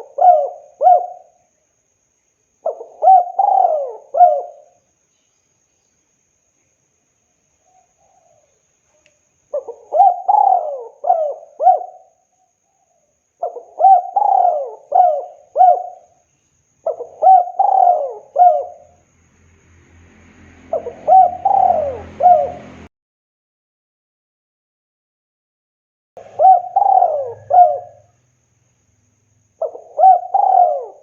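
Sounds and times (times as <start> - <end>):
dove cooing: 0.0 - 1.4, 2.6 - 4.8, 9.5 - 12.2, 13.4 - 16.2, 16.8 - 19.0, 20.7 - 22.9, 26.2 - 28.2, 29.6 - 31.0
low hum and hiss: 26.2 - 30.3.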